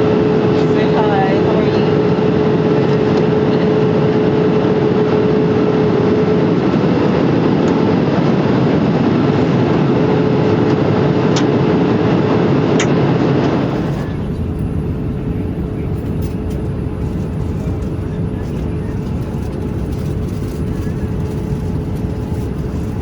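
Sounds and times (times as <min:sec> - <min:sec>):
airliner cabin noise: 0:10.6 - 0:23.0
steady hum: 0:13.4 - 0:23.0.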